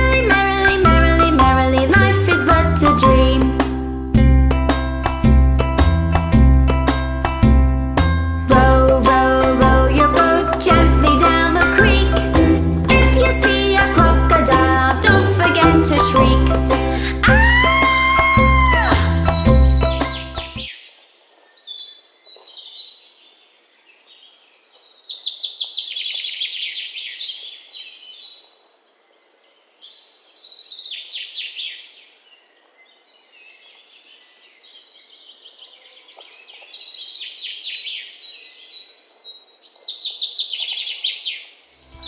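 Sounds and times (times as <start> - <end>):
songbirds chirping and trilling: 17.4 - 42.0.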